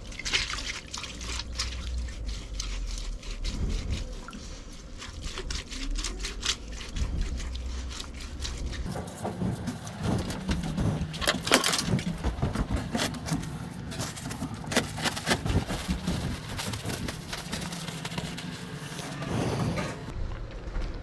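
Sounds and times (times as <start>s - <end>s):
low steady hum: 8.9s - 20.1s
tools and metal parts clicking: 8.9s - 20.1s.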